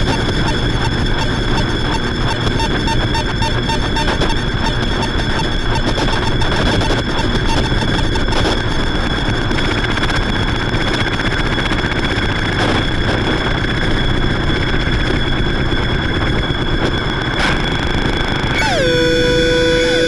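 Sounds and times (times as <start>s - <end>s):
high held tones: 18.5s - 20.0s.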